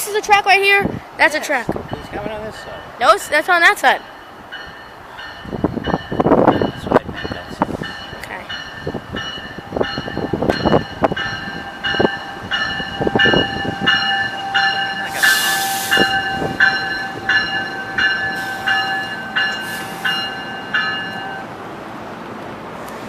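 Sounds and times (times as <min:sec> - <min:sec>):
locomotive bell ringing: 0:01.8 - 0:21.6
air hiss bursts: 0:15.0 - 0:16.3, 0:19.6 - 0:20.3.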